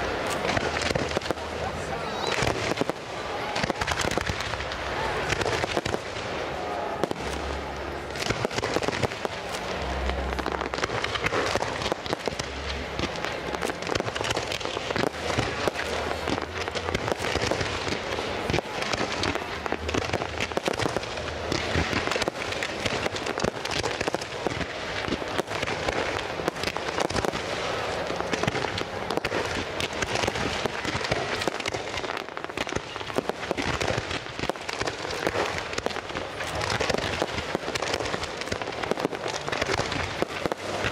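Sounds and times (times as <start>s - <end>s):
deep fireworks booms: 0.0s - 40.9s
fireworks crackling and popping: 0.0s - 40.9s.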